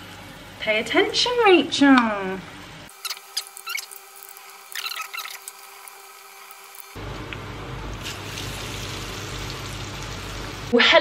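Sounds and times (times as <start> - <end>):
falafel sizzling in oil: 2.9 - 10.8.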